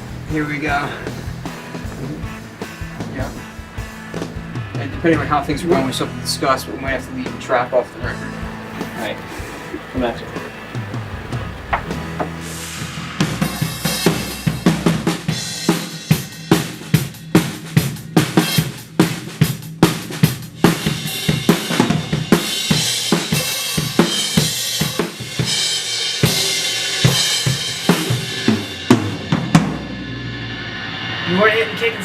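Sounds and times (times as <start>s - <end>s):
drum kit groove: 13.4s - 29.8s
cymbals ringing: 30.8s - 32.0s.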